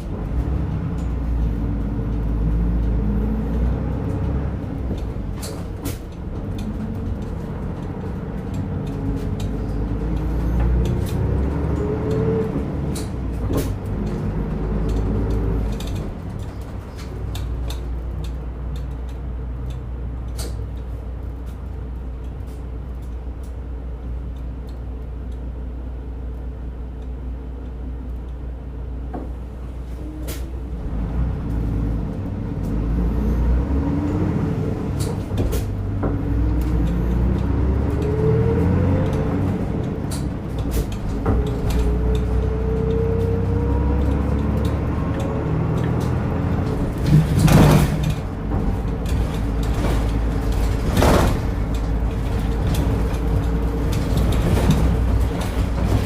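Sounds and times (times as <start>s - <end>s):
clicks and rattles from bus body: 0.0s - 56.0s
diesel bus engine accelerating: 0.0s - 56.0s.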